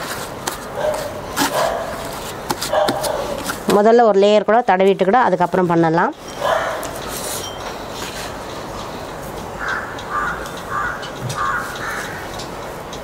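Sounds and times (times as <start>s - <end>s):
steady background hiss: 0.0s - 13.0s
bird harsh calls: 9.6s - 12.4s.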